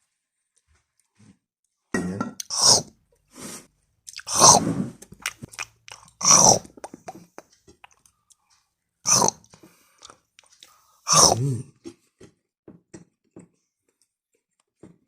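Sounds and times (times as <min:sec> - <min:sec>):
loud lip smacking: 0:02.4 - 0:02.9, 0:04.1 - 0:08.1, 0:09.1 - 0:10.5, 0:11.1 - 0:11.5
wet chewing with mouth clicks: 0:04.0 - 0:12.4.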